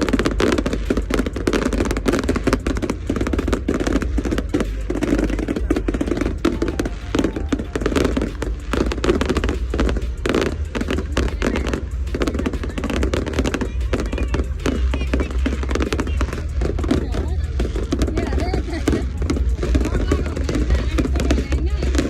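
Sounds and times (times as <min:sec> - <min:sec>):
fireworks crackling: 0:00.0 - 0:22.0.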